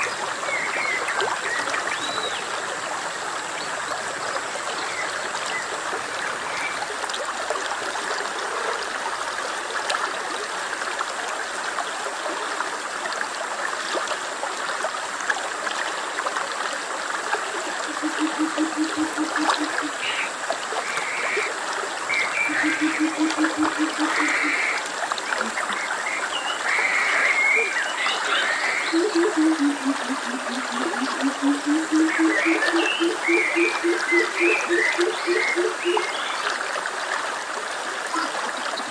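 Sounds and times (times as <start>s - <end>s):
stream water running: 0.0s - 38.9s
low pulsed animal call: 17.9s - 20.0s, 22.4s - 24.8s, 28.3s - 36.1s.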